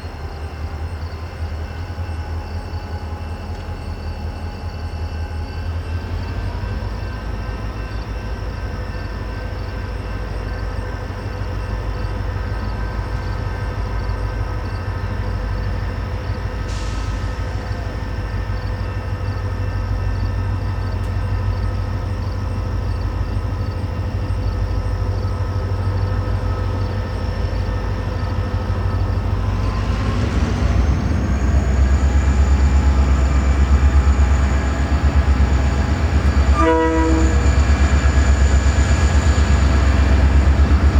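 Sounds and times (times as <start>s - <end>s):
locomotive engine rumble: 0.0s - 40.9s.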